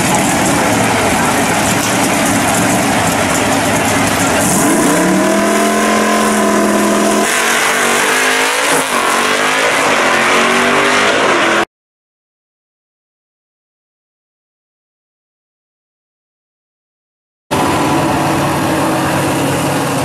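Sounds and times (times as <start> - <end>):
drag car engines revving: 0.0 - 11.7, 17.5 - 20.0.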